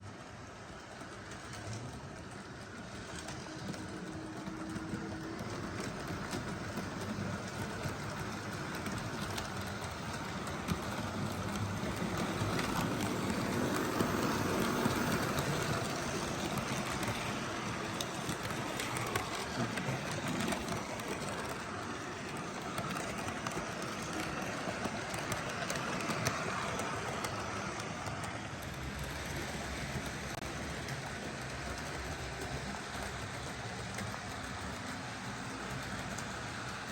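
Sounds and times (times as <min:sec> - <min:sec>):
model train rumbling on track: 0:00.0 - 0:36.9
wheels clicking on rails: 0:00.0 - 0:36.9.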